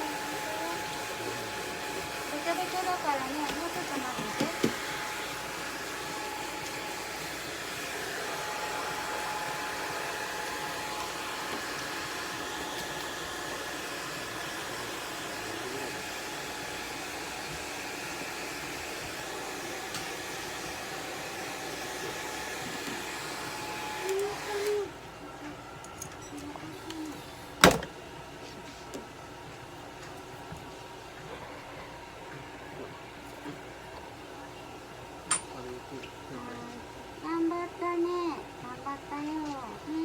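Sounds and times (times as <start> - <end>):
hair dryer running: 0.0 - 25.7.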